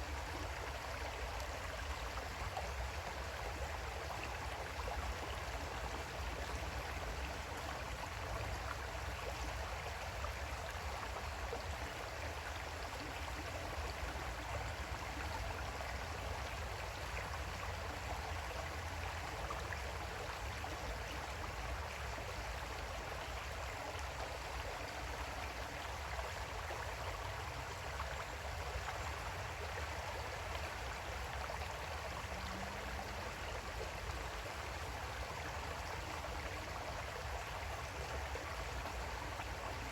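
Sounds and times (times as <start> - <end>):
creek babbling over stones: 0.0 - 39.9.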